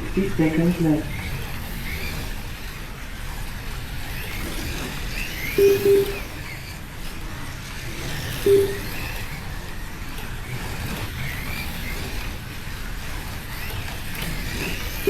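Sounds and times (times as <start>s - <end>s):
slot car motors whining: 0.0s - 15.0s
short electronic beep: 5.6s - 6.3s, 8.5s - 9.0s.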